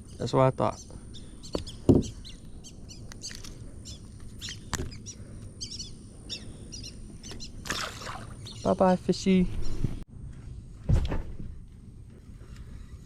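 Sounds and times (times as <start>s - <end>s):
birds chirping and singing: 0.0s - 10.0s.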